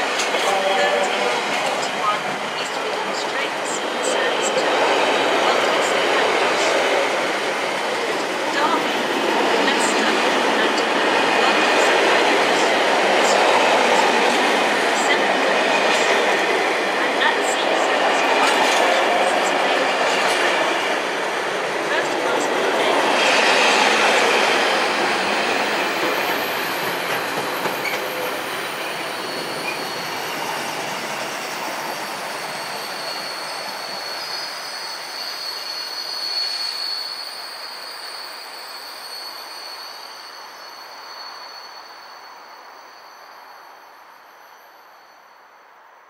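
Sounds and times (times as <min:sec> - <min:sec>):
freight train rumbling past: 0:00.0 - 0:34.3
high wheel squeal: 0:22.3 - 0:45.5.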